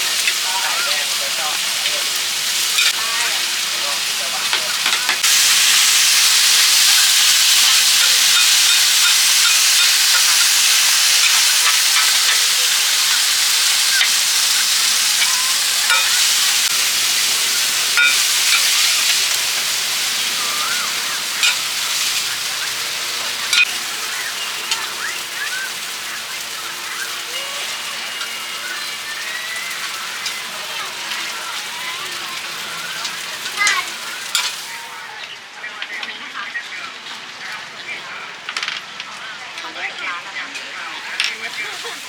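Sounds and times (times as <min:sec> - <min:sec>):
food sizzling in hot oil: 0:00.0 - 0:35.3, 0:37.0 - 0:42.0
metal utensil clinking and scraping: 0:02.6 - 0:03.0, 0:06.8 - 0:20.3, 0:20.9 - 0:22.4, 0:33.0 - 0:34.7.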